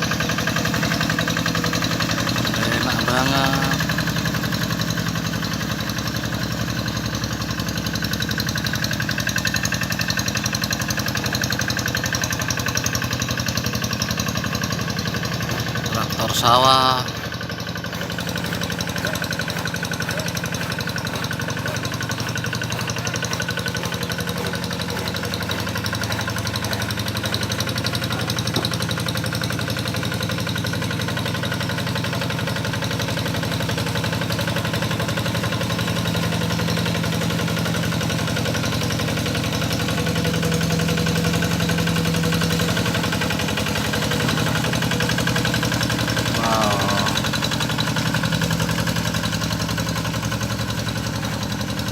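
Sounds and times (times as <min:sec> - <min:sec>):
tractor engine running: 0:00.0 - 0:51.9.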